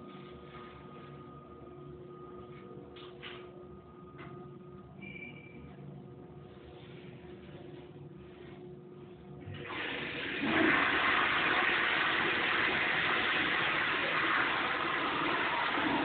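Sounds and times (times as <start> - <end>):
toilet flushing: 9.4 - 16.0.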